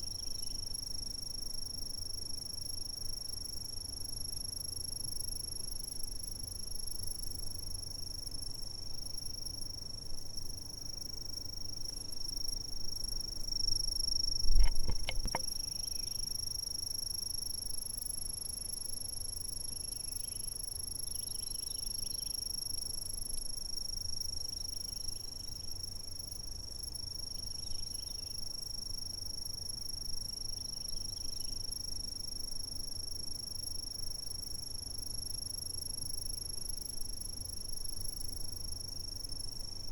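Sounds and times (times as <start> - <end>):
insects trilling: 0.0 - 39.9
low thump with clicks: 14.4 - 15.5.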